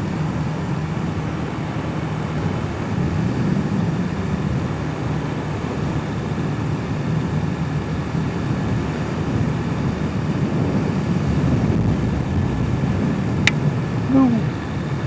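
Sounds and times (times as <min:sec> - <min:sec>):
wind noise: 0:00.0 - 0:15.0.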